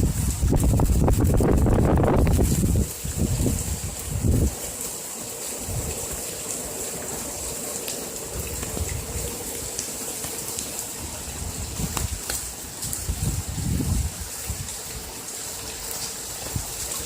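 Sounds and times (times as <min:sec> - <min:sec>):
wind buffeting microphone: 0:00.0 - 0:04.8, 0:05.6 - 0:06.3, 0:08.2 - 0:09.9, 0:10.5 - 0:15.1
heavy rain pouring: 0:00.0 - 0:17.0.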